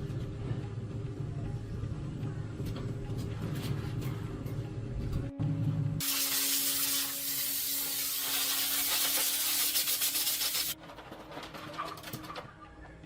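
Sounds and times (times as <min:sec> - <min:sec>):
harsh hissing rub: 0:06.0 - 0:10.8.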